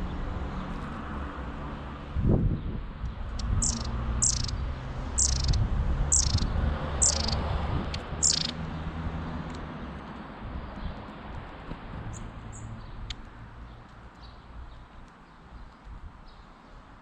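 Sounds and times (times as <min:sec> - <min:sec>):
bird high thin calls: 0:03.4 - 0:04.6, 0:05.2 - 0:07.4, 0:08.2 - 0:08.6.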